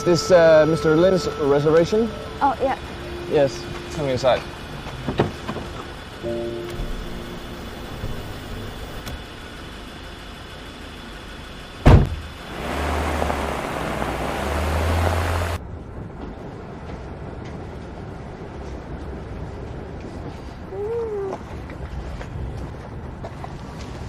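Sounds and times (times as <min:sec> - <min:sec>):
car engine and road rumble: 0:00.0 - 0:24.0
car door slamming: 0:05.0 - 0:05.8, 0:11.8 - 0:12.3.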